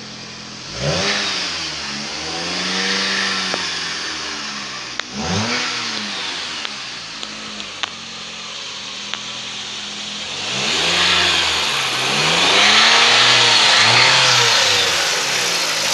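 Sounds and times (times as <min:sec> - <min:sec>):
car engine idling and revving: 0:08.6 - 0:15.9.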